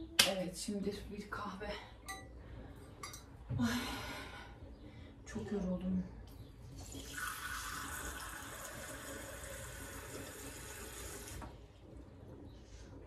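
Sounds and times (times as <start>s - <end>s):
water running from a tap: 6.8s - 11.5s.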